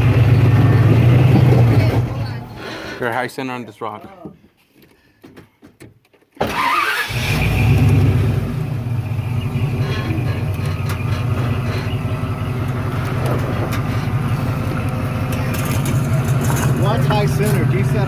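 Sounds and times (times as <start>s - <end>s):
vehicle engine revving: 0.0s - 2.6s, 6.6s - 18.0s.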